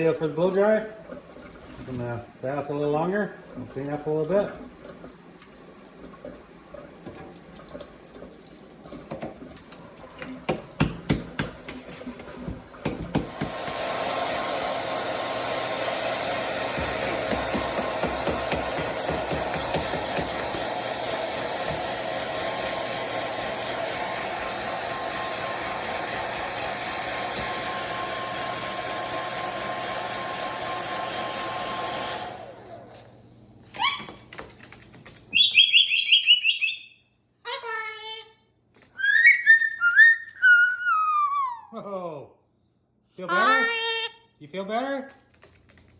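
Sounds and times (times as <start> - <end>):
blow dryer running: 0.0 - 5.0, 12.0 - 33.6
sharp knocks and clatters: 16.7 - 20.6
high whistle-like chirps: 35.3 - 37.1, 39.0 - 41.1.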